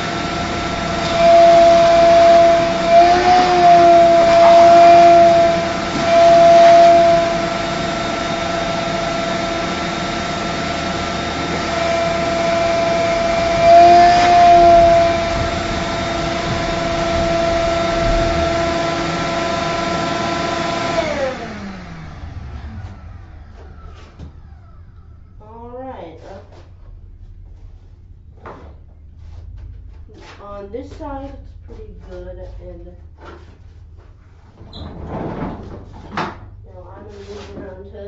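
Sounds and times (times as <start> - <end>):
vacuum cleaner motor whine: 0.0 - 25.4.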